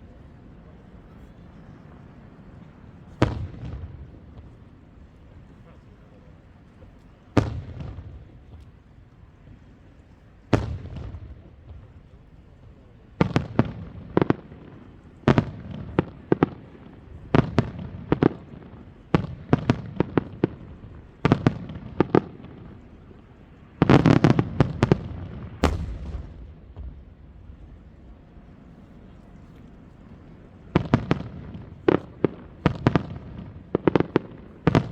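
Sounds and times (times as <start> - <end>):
fireworks bursting: 13.2 - 34.9
rumbling echo: 25.6 - 28.4.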